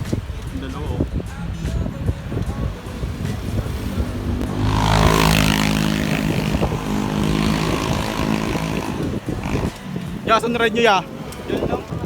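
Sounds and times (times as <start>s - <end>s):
road noise: 0.0s - 12.0s
vehicle engine running: 3.5s - 9.8s.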